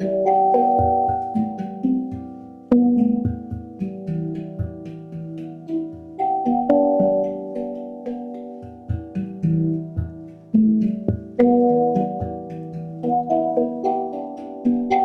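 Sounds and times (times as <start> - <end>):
handpan notes ringing: 0.0 - 15.0.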